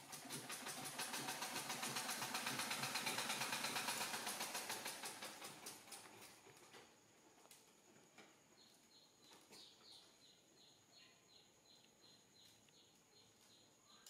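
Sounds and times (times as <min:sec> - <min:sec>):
small bird chirping: 0:08.2 - 0:14.0.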